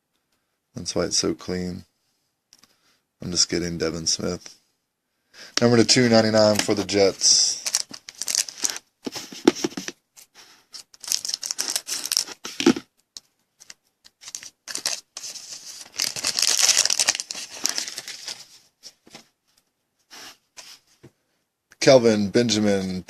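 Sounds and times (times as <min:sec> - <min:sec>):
plastic packaging crinkling: 0:05.9 - 0:09.9, 0:10.8 - 0:12.8, 0:13.6 - 0:18.5.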